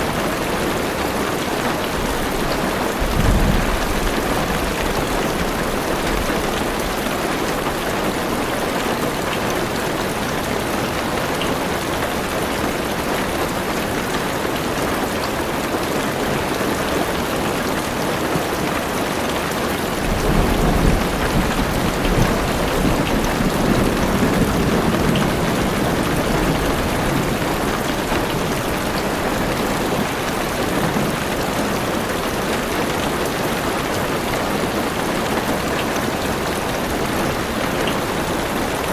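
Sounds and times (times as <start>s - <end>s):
heavy rain on car roof: 0.0s - 38.9s
low thunder rumbling: 2.0s - 7.0s, 20.0s - 29.7s.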